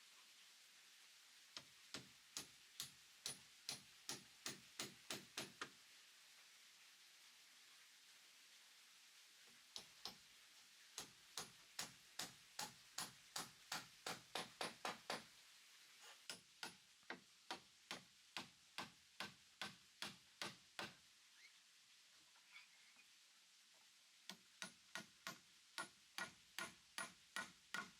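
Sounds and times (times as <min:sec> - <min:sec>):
tool knocking on wood: 0:11.4 - 0:15.2.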